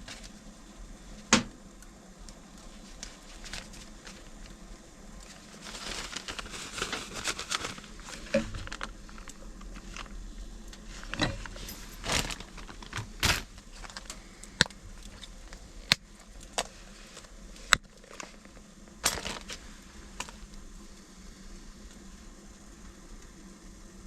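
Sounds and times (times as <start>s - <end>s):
rustling: 2.6s - 20.6s.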